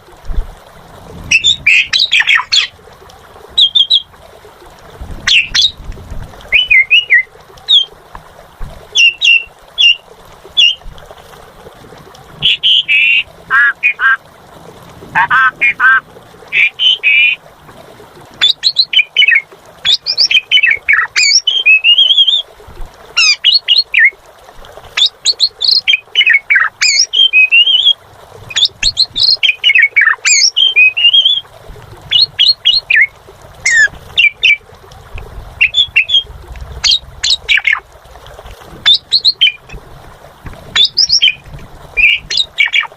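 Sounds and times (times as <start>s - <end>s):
starling singing: 1.3s - 2.7s, 3.6s - 4.1s, 5.3s - 5.8s, 6.5s - 7.9s, 9.0s - 10.0s, 10.6s - 10.8s, 12.4s - 14.2s, 15.2s - 17.4s, 18.4s - 22.4s, 25.0s - 31.4s, 32.1s - 33.1s, 33.7s - 34.6s, 35.6s - 37.8s, 38.9s - 39.8s, 40.8s - 41.4s, 42.0s - 42.9s.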